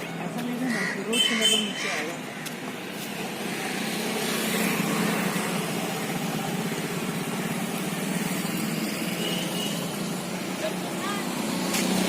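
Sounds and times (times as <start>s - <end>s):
road noise: 0.0s - 12.0s
small vehicle engine running: 3.1s - 12.0s.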